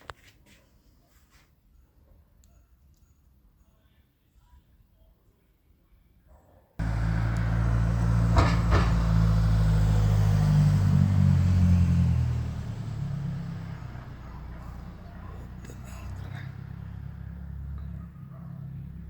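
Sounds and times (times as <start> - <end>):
vehicle engine humming: 6.8 - 19.0.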